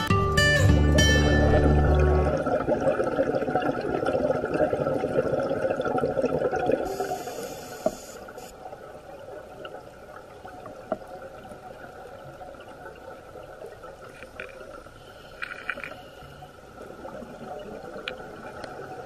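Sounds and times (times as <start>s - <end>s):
diver's bubbles underwater: 1.4s - 7.9s
breath hissing through regulator: 6.9s - 8.5s.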